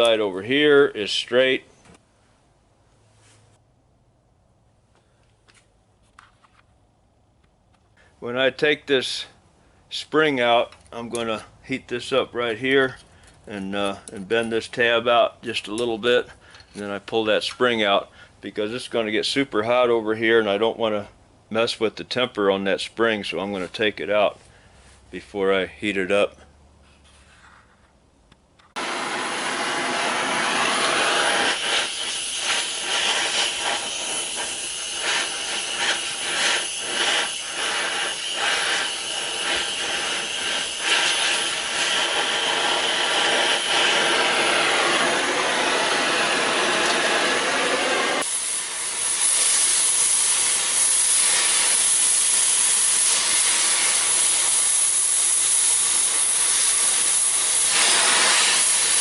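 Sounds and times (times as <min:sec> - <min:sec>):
cutting torch flame hissing: 0:28.7 - 0:59.0.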